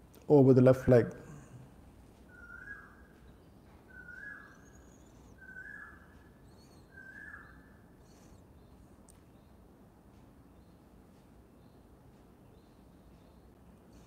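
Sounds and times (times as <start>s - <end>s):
bird calling clear note: 2.3s - 3.1s, 3.9s - 8.4s
faint high bird chirps: 2.3s - 9.6s.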